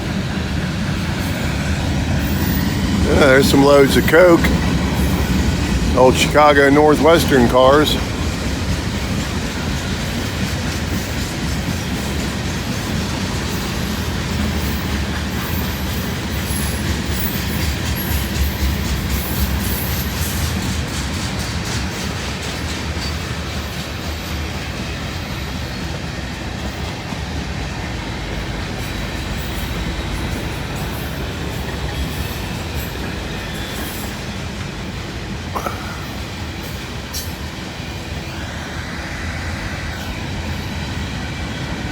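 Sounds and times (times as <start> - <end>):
train wheels clicking over rail joints: 0.0 - 38.2
high wheel squeal: 28.8 - 34.5.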